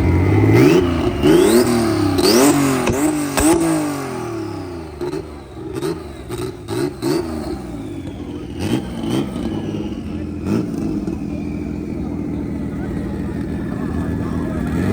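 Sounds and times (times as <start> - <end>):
car engine revving: 0.0 - 14.9
sharp engine cracks: 1.4 - 4.1.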